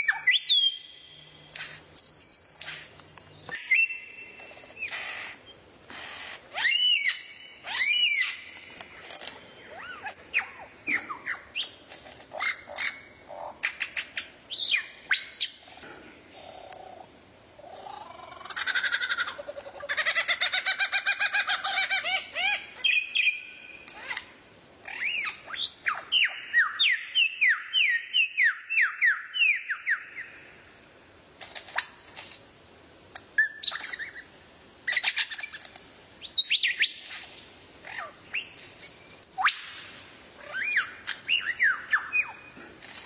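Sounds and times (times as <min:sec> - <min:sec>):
songbird chirping and whistling: 0:00.0 - 0:05.6, 0:06.6 - 0:08.8, 0:09.5 - 0:11.8, 0:12.4 - 0:15.7, 0:20.7 - 0:24.2, 0:24.8 - 0:30.4, 0:31.8 - 0:32.4, 0:33.4 - 0:34.3, 0:34.9 - 0:42.6.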